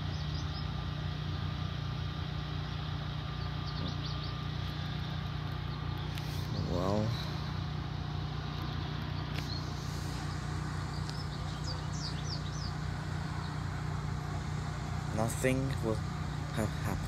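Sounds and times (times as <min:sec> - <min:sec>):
bird chirps: 0:00.0 - 0:01.5, 0:02.6 - 0:07.5, 0:08.6 - 0:13.7
truck engine idling: 0:00.0 - 0:17.0.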